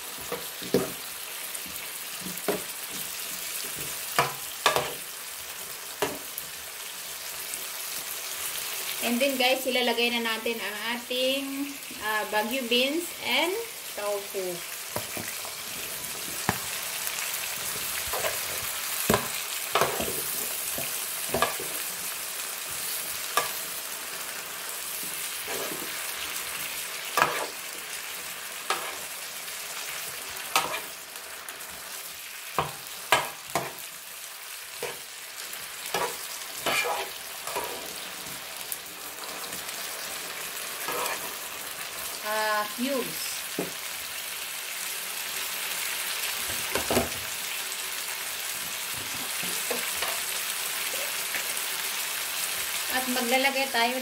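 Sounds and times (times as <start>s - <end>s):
food sizzling in a skillet: 0.0s - 54.0s
metal spoon scraping a pan: 18.0s - 21.9s, 25.0s - 28.0s, 28.6s - 29.2s, 30.4s - 31.0s, 35.8s - 38.1s, 40.8s - 41.5s.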